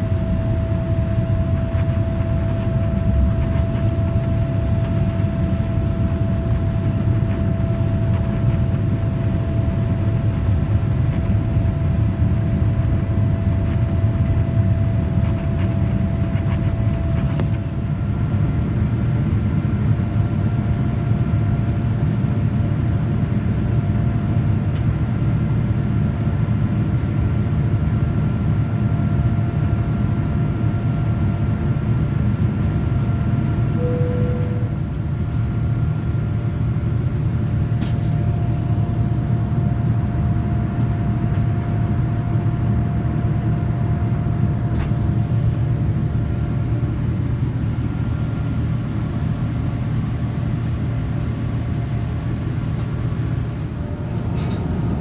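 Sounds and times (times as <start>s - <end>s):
jet cabin rumble: 0.0s - 55.0s
thin engine tone: 33.8s - 34.7s.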